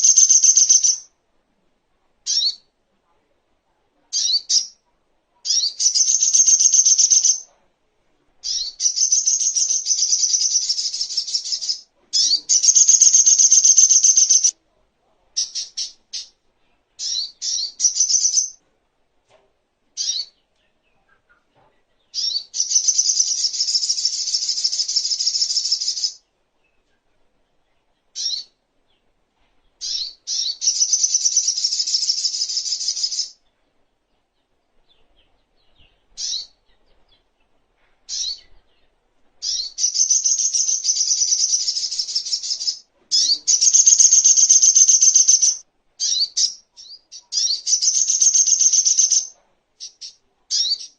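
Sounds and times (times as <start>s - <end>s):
bird singing high trills: 0.0s - 1.1s, 8.4s - 14.5s, 39.4s - 49.3s.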